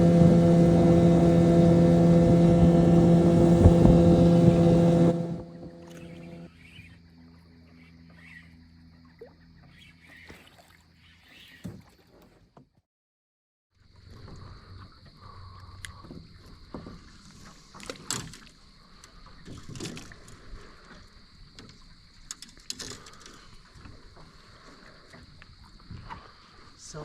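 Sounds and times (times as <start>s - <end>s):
high-pitched whine: 0.0s - 6.6s
water moving around boat: 0.0s - 6.7s, 8.1s - 12.8s, 13.9s - 27.0s.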